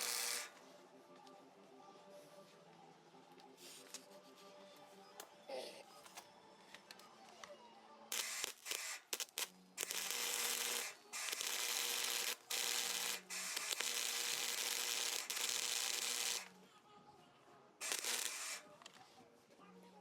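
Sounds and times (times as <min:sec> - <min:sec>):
welder arc hissing crackle: 0:00.0 - 0:00.6, 0:08.1 - 0:16.5, 0:17.8 - 0:18.7.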